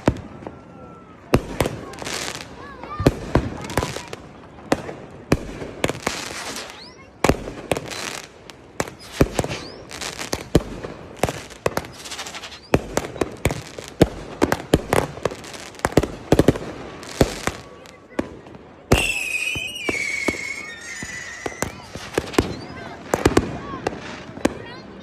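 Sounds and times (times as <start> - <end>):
fireworks bangs and pops: 0.0 - 25.0
fireworks crackling: 0.0 - 25.0
fireworks whistles: 5.6 - 17.8, 18.8 - 24.8.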